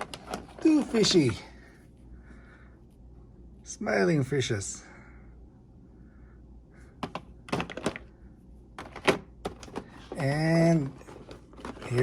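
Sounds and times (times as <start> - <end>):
man speaking: 0.6 - 1.6, 3.6 - 5.0, 10.2 - 11.0.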